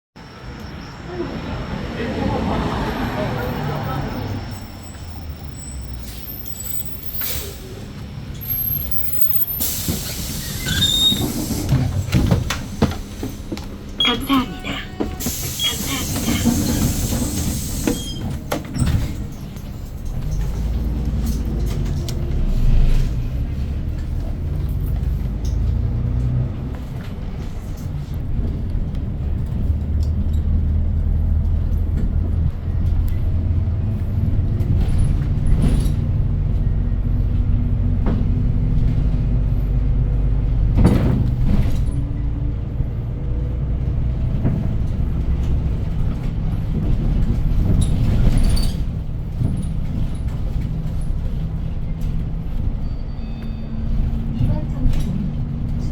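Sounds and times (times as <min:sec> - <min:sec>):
bus engine drone: 0:00.2 - 0:55.9
bus body knocks and rattles: 0:09.9 - 0:14.3, 0:15.0 - 0:22.5, 0:23.5 - 0:52.9.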